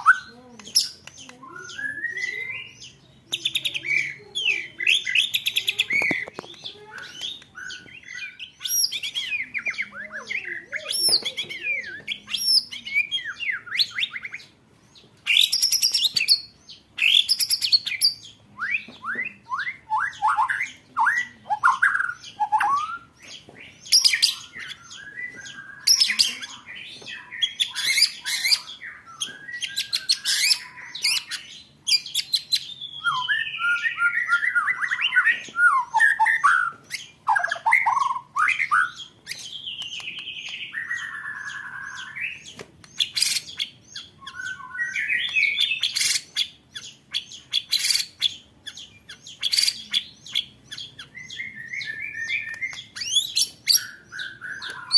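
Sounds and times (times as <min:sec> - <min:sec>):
songbird singing trills: 0:00.0 - 0:54.9.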